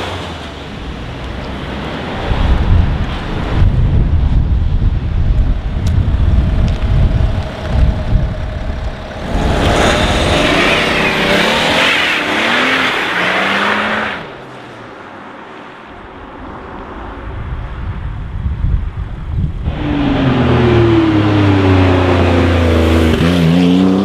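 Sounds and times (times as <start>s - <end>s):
wind rumbling on microphone: 0.8s - 11.2s, 15.9s - 22.8s
car engine accelerating: 6.7s - 14.2s, 19.6s - 24.0s.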